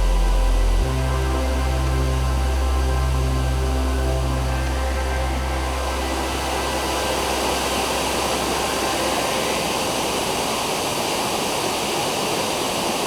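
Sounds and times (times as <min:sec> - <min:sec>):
low musical drone: 0:00.0 - 0:12.6
waterfall roaring: 0:03.7 - 0:13.0.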